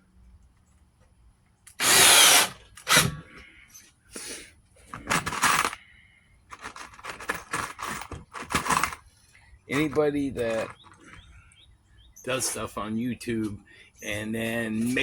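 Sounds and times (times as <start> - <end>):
power drill driving screws: 1.7 - 3.2
handling clicks and knocks: 4.9 - 5.8, 6.5 - 9.1, 9.7 - 11.3.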